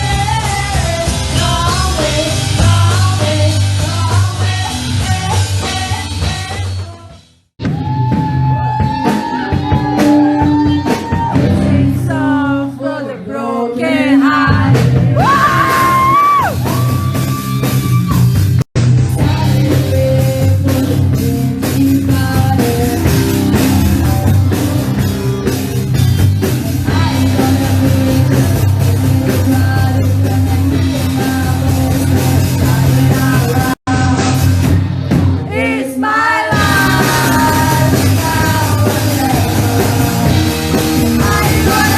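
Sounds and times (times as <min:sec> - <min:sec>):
rock band playing live: 0:00.0 - 0:12.6, 0:13.9 - 0:41.9
person singing and shouting: 0:14.5 - 0:18.3.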